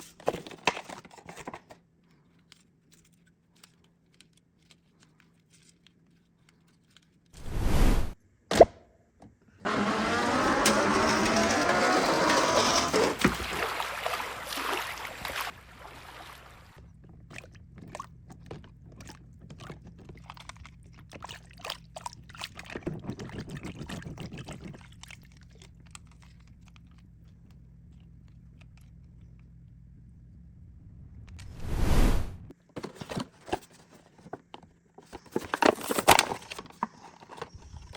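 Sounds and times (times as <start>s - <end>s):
trickling water splash: 13.2s - 18.0s
small drips and clicks: 16.7s - 29.5s.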